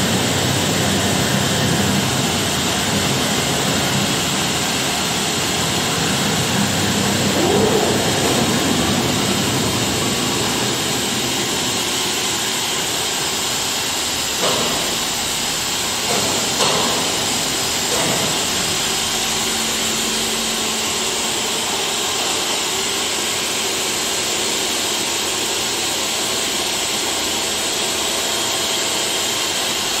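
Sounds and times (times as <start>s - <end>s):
router hissing and humming: 0.0s - 24.5s
rising whine: 2.2s - 13.3s.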